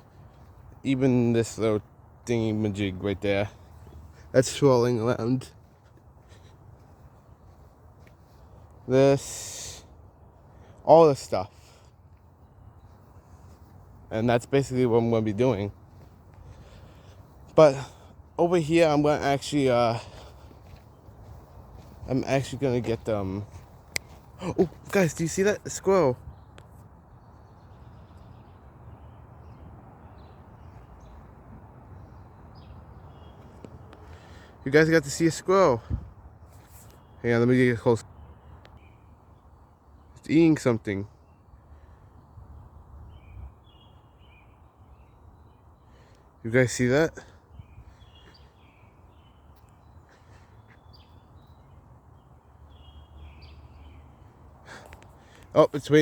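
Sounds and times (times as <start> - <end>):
faint birds chirping: 0.0 - 56.0.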